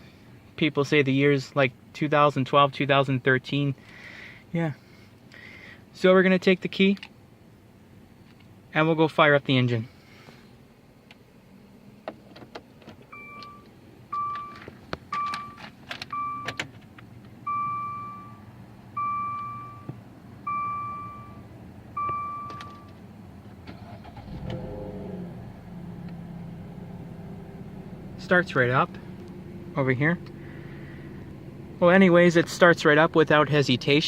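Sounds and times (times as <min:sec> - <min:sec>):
car engine cranking and idling: 0:05.0 - 0:34.0
key clicking in ignition: 0:12.8 - 0:16.8
car warning chime: 0:13.1 - 0:16.6, 0:17.4 - 0:23.0.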